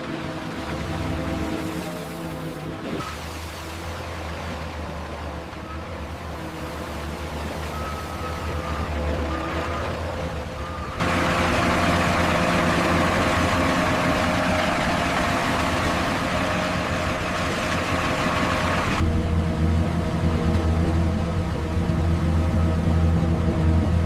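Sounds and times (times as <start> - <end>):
heavy engine idling: 3.4 - 24.0.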